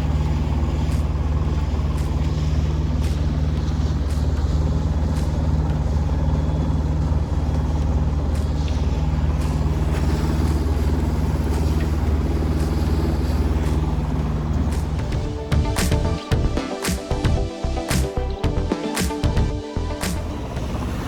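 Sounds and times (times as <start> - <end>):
boat motor humming: 0.0 - 21.0.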